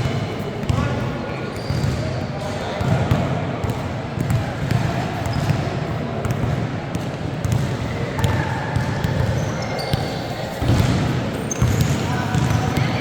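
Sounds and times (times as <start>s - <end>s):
crowd chatter: 0.0s - 13.0s
shoe squeak: 1.5s - 2.1s, 9.2s - 13.0s
basketball dribbling on gym floor: 6.2s - 13.0s.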